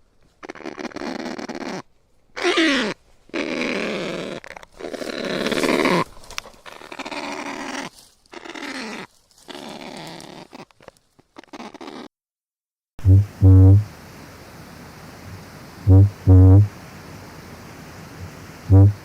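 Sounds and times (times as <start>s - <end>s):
harsh rasping bird calls: 0.4s - 10.8s, 11.4s - 12.1s.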